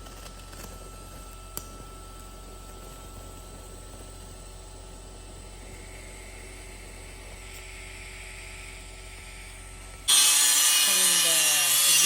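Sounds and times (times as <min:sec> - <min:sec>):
electrical hum with hiss: 0:00.0 - 0:12.0.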